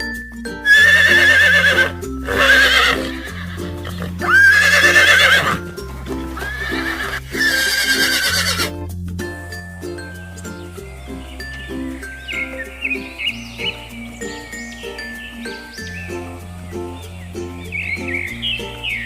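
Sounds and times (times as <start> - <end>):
background music with bass line: 0.0 - 19.0
horse whinnying: 0.7 - 8.8.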